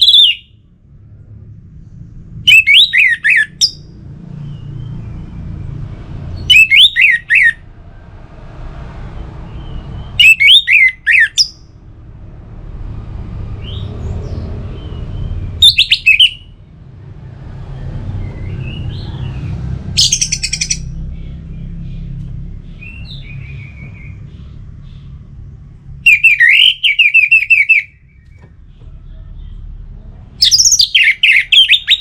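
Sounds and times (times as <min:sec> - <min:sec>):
low background rumble: 0:00.0 - 0:10.2, 0:10.8 - 0:32.0
thrush singing: 0:06.2 - 0:07.7, 0:08.6 - 0:11.6.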